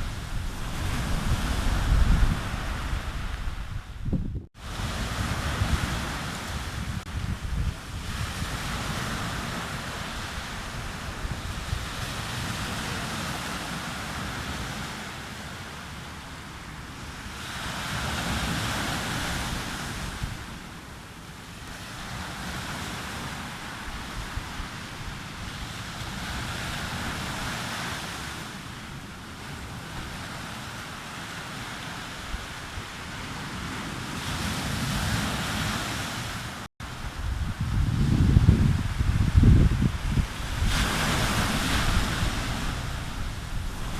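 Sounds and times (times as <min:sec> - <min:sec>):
sea waves breaking on beach: 0:00.0 - 0:03.8, 0:04.6 - 0:43.9
wind buffeting microphone: 0:00.0 - 0:13.7, 0:36.8 - 0:43.9.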